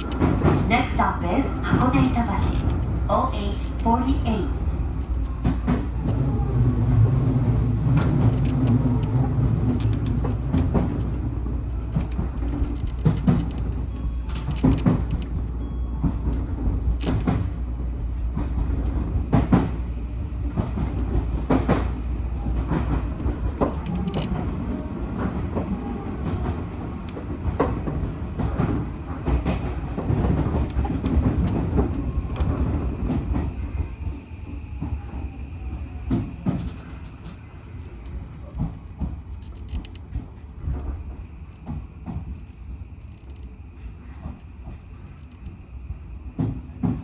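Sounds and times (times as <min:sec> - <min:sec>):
electric train rumble: 0:00.0 - 0:47.0
wheels clicking over rail joints: 0:04.8 - 0:15.4, 0:22.7 - 0:33.9.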